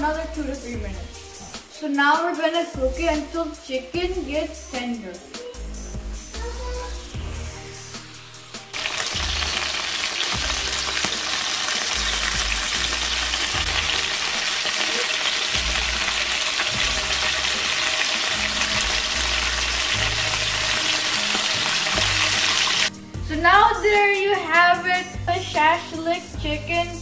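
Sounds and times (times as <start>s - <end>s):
skewers sizzling in hot oil: 7.1s - 22.9s.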